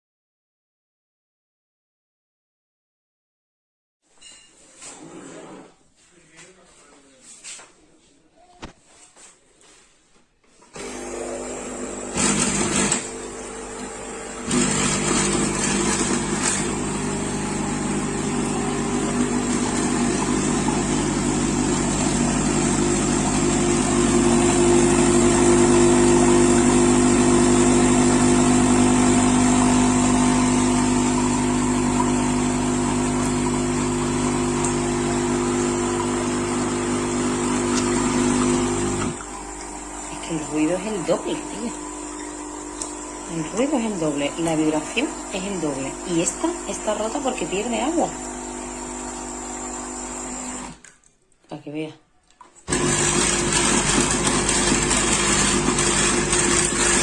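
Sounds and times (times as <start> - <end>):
coffee machine pump buzzing hum: 10.8 - 50.8, 52.7 - 57.0.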